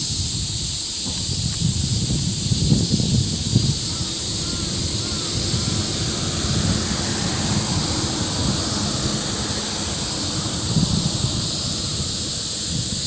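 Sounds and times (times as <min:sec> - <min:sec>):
wind buffeting microphone: 0:00.0 - 0:13.0
river rushing: 0:03.7 - 0:13.0.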